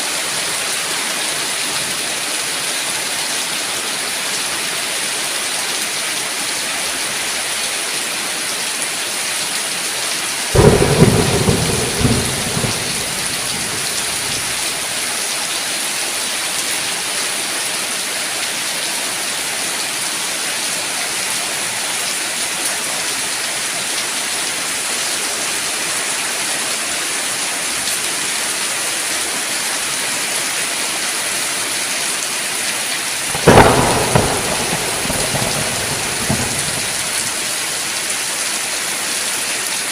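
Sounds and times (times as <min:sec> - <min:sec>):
heavy rain hissing: 0:10.5 - 0:15.2, 0:33.1 - 0:39.1
thunder claps rumbling: 0:10.6 - 0:14.9, 0:33.3 - 0:37.6.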